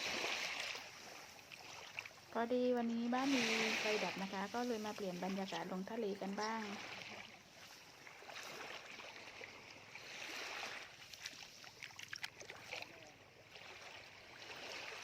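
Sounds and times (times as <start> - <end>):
small waves washing over sand: 0.0 - 15.0
small clicks and splashes: 1.4 - 2.9, 10.7 - 13.2.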